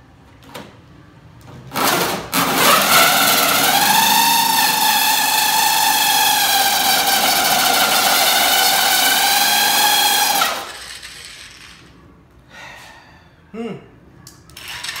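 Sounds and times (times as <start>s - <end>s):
electric drill motor whining: 2.4s - 10.8s.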